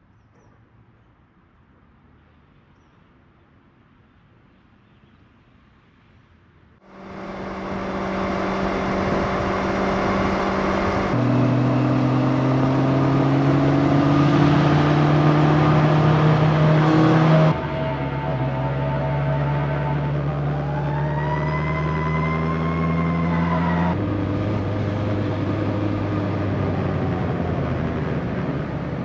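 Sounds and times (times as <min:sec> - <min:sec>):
motorcycle engine accelerating: 0:06.9 - 0:29.0.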